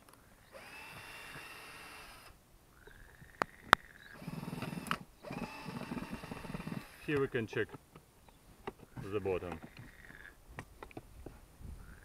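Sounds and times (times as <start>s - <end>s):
honeybees buzzing: 3.4s - 7.3s.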